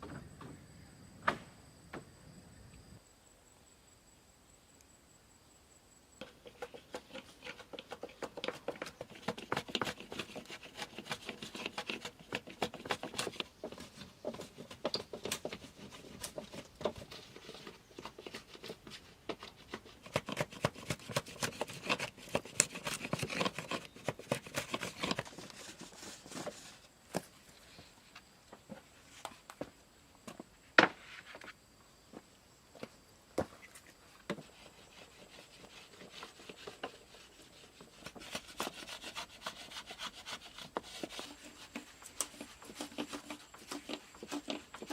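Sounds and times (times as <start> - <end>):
crackling and rustling: 40.6 - 44.9.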